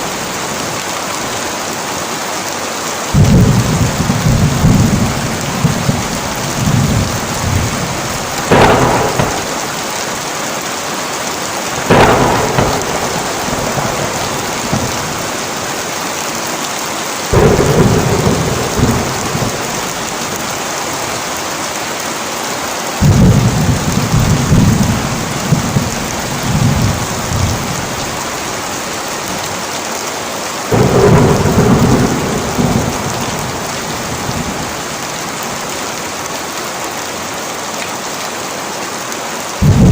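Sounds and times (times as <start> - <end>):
heavy rain falling: 0.0 - 39.9
low rolls of thunder: 3.1 - 10.2, 11.6 - 15.9, 17.3 - 21.2, 23.0 - 29.5, 30.7 - 35.7, 39.6 - 39.9
sharp thunder crack: 3.1 - 10.2, 11.8 - 15.8, 17.3 - 20.7, 23.0 - 28.2, 30.7 - 35.1, 39.6 - 39.9.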